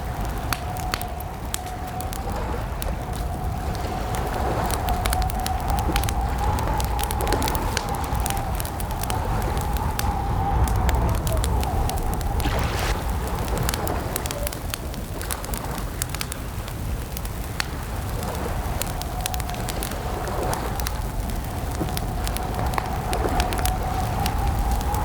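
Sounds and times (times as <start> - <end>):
campfire crackling and popping: 0.0 - 25.0
low steady rumble: 4.7 - 15.2.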